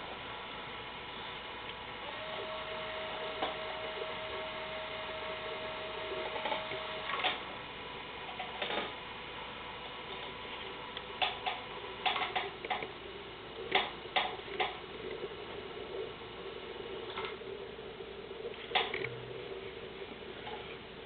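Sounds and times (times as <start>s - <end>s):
electric motor whining: 2.0s - 7.6s.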